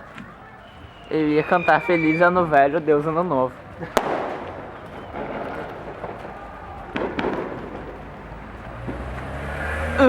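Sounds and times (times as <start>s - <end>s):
fireworks and firecrackers: 0.0s - 10.0s
steady background noise: 0.0s - 10.0s
sharp bang: 3.9s - 8.2s.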